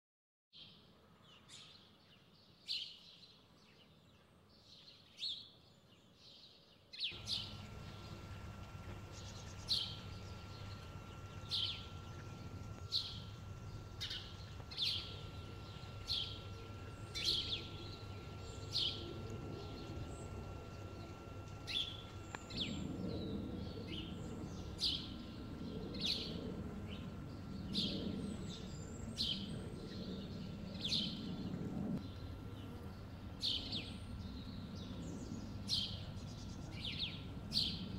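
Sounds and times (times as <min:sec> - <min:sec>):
bird chirping: 0:01.3 - 0:31.3
low wavering drone: 0:07.2 - 0:37.9.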